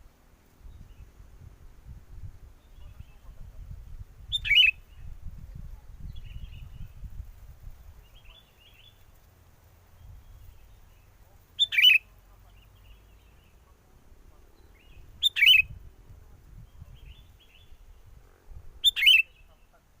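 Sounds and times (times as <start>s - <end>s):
wind rumble on microphone: 0.0s - 9.2s, 9.8s - 11.4s, 12.4s - 19.6s
faint bird chirps: 2.6s - 9.2s, 9.8s - 20.0s
bird calling: 4.3s - 4.8s, 11.6s - 13.7s, 14.6s - 15.7s, 18.8s - 19.9s.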